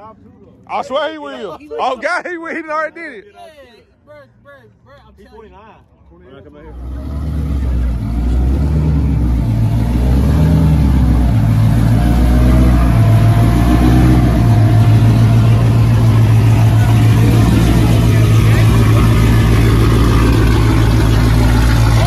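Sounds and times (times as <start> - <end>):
car engine revving: 6.5 - 22.0.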